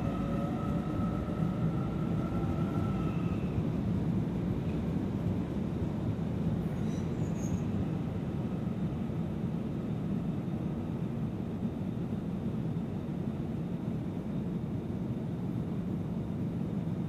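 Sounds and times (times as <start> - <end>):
faint high squeals: 0.0 - 3.6, 6.6 - 7.8
train wheels rumbling on rail: 0.0 - 17.0.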